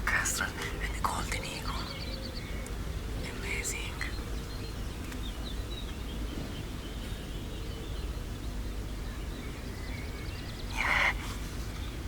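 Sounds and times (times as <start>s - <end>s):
low outdoor rumble: 0.0s - 12.0s
faint bird chirps: 0.1s - 12.0s.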